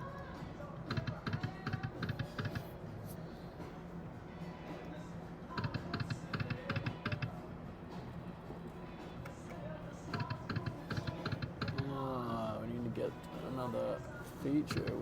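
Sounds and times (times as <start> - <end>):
poker machine reels clicking: 0.9 - 2.6, 5.6 - 7.3, 10.2 - 11.9, 14.7 - 15.0.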